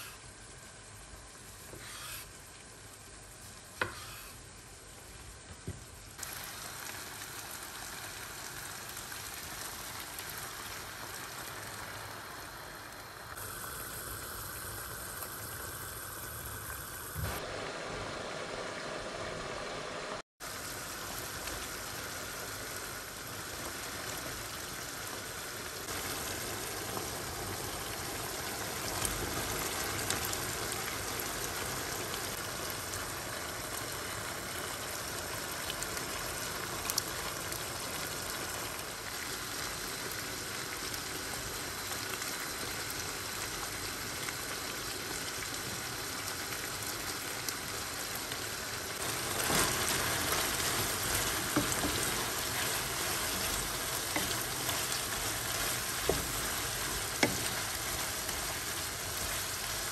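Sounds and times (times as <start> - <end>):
chicken sizzling in oil: 6.2 - 59.9.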